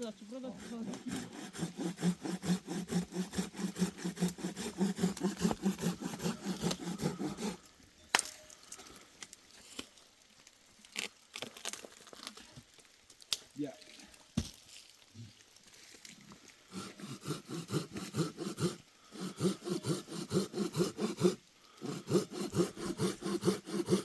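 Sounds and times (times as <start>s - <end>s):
hand saw cutting wood: 0.3s - 7.7s, 16.7s - 24.0s.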